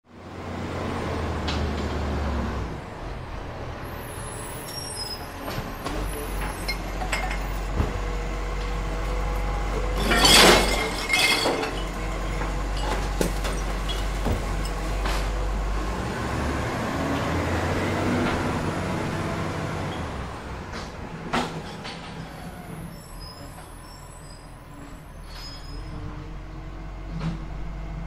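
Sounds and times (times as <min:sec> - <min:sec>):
garbage truck engine rumble: 0:00.1 - 0:28.0
glass clinking: 0:06.6 - 0:07.6, 0:10.0 - 0:14.8
contents crashing into truck: 0:09.7 - 0:15.4
bin clanking: 0:09.8 - 0:15.3.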